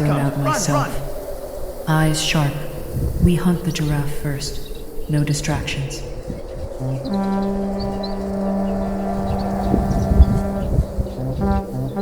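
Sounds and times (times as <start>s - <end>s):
deep rumbling thumps: 6.3s - 8.1s, 8.8s - 12.0s
low brass drone: 6.5s - 12.0s.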